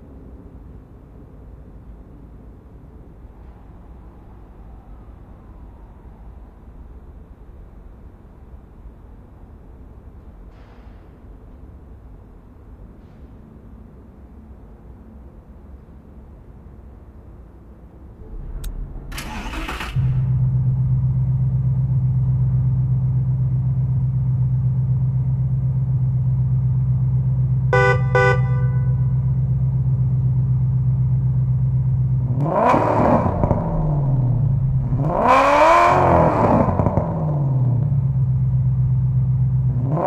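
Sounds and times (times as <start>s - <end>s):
car engine cranking and starting: 18.2s - 24.7s, 31.4s - 38.2s
car engine revving: 18.2s - 29.0s, 31.1s - 40.0s
car engine idling: 18.2s - 32.4s, 33.1s - 39.8s.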